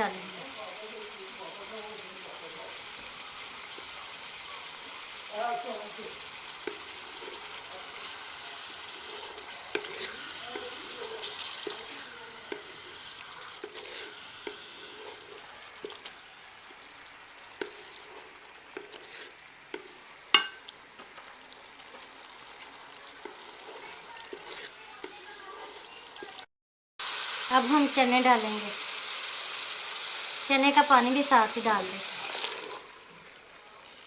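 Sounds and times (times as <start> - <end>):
food sizzling in a pot: 0.0 - 34.0
spoon stirring and scraping: 1.6 - 26.5, 32.2 - 33.0.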